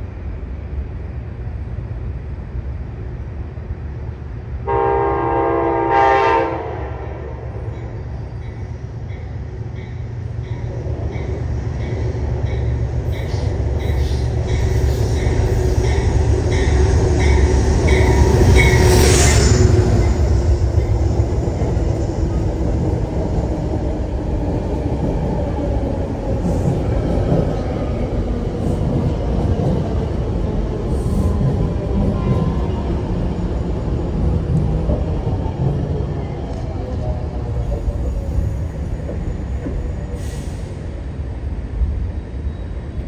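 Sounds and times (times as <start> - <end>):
train rumbling: 0.0 - 43.0
train wheels screeching: 11.3 - 21.4.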